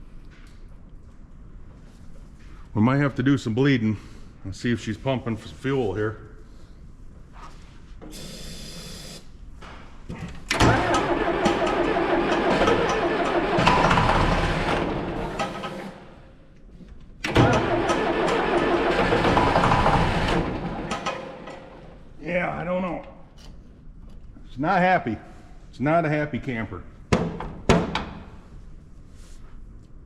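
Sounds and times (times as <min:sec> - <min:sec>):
diesel engine starter cranking: 0:10.5 - 0:16.2, 0:17.2 - 0:22.0.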